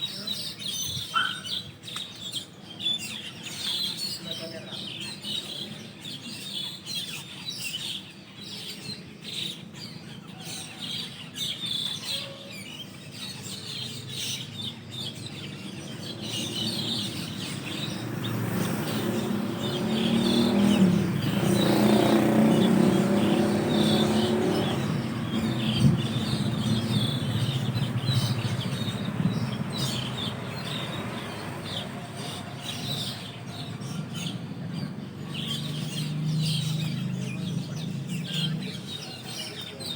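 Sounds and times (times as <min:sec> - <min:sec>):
starlings chattering: 0:00.0 - 0:39.9
vehicle passing with low rumble: 0:15.8 - 0:39.0.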